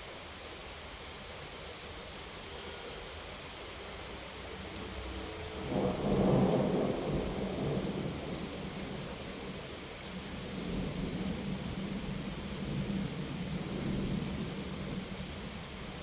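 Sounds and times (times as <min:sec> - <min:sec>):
steady rain: 0:00.0 - 0:16.0
thunder cracking and rumbling: 0:05.6 - 0:15.4.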